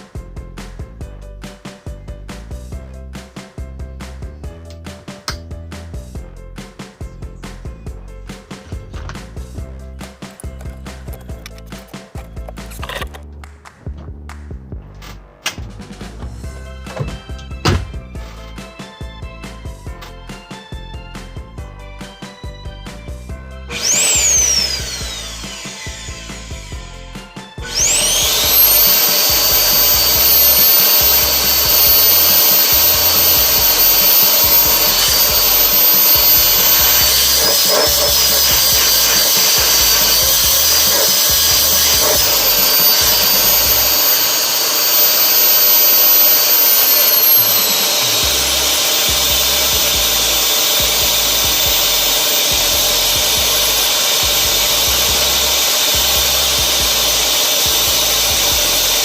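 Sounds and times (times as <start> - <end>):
vacuum motor whining: 23.7 - 59.0.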